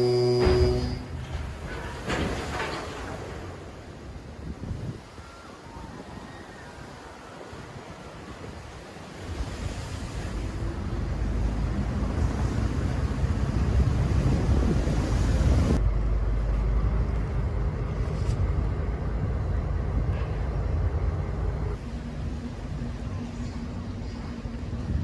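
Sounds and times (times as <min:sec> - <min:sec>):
low mechanical rumble: 0:10.1 - 0:25.0.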